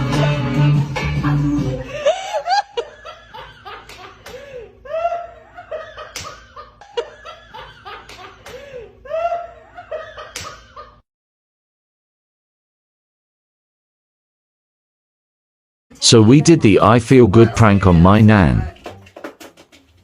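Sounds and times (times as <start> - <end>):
person laughing hard: 1.4 - 11.0.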